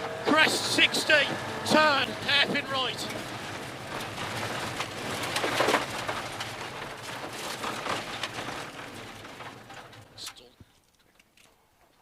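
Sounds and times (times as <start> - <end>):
car engine revving: 0.0 - 10.2
road noise inside car: 0.0 - 10.6
small clicks and rattles: 3.0 - 12.0.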